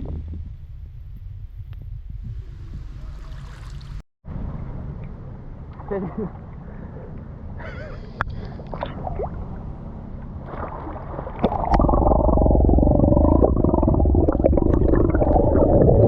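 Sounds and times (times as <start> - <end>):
water rushing and gurgling: 8.6 - 16.0.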